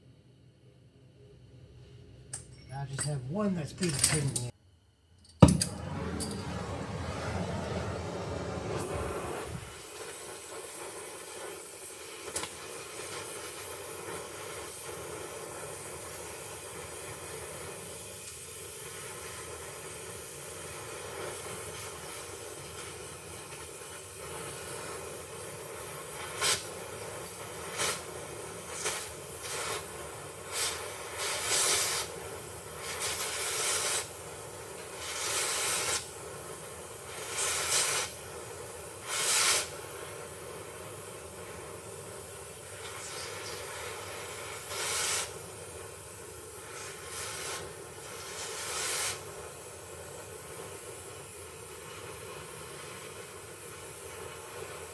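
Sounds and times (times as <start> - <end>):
torch rushing blasts: 5.4 - 12.2, 18.8 - 40.9, 42.5 - 50.1
gas torch flame hissing: 5.4 - 54.9.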